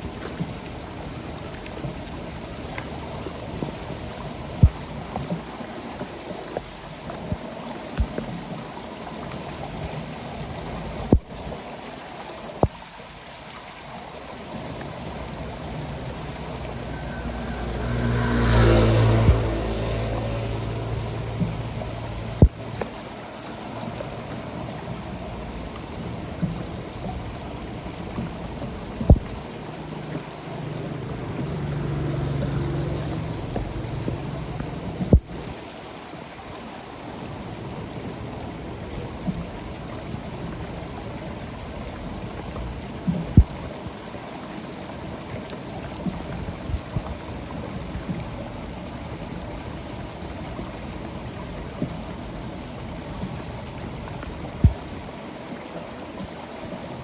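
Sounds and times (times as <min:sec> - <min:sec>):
water running into storm drain: 0:00.0 - 0:57.0
low rumble: 0:15.5 - 0:22.8.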